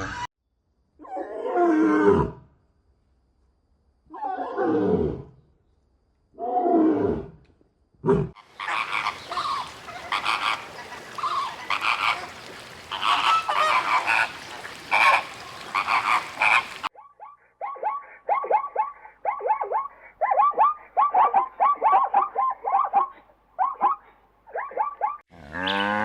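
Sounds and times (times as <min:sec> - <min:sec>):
poultry honking and calling: 0:08.4 - 0:16.9, 0:25.4 - 0:26.0.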